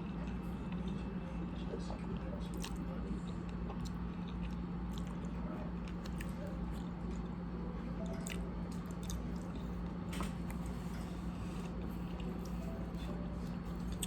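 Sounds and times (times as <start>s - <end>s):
steady low hum: 0.0s - 14.0s
wet chewing mouth sounds: 2.5s - 7.3s, 8.0s - 9.7s.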